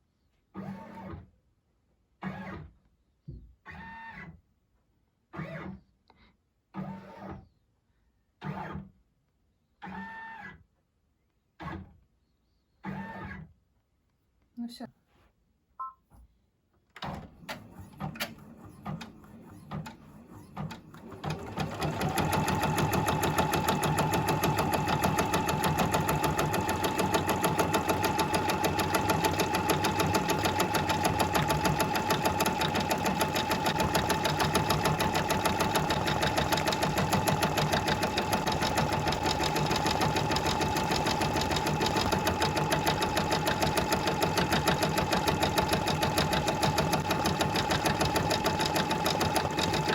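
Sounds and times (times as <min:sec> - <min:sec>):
embroidery machine stitching: 0:17.0 - 0:49.9.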